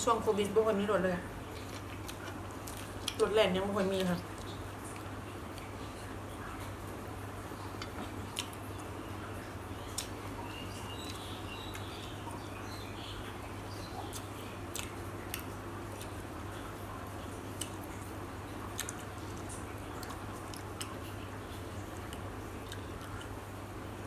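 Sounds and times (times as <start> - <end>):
person chewing food: 1.4 - 3.2, 4.2 - 6.8, 7.6 - 12.5, 14.0 - 23.5.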